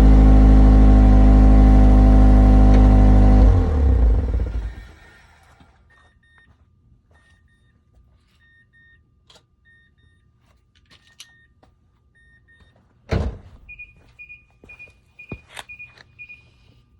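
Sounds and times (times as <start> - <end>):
car warning chime beeping: 13.7 - 16.6.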